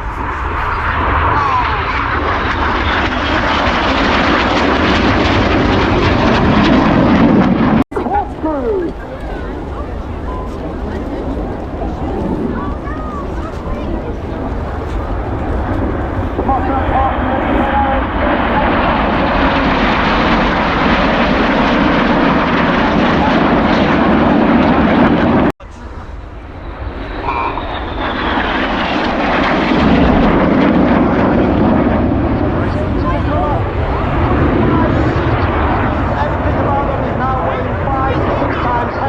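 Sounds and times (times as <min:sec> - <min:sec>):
jets roaring overhead: 0:00.0 - 0:39.0.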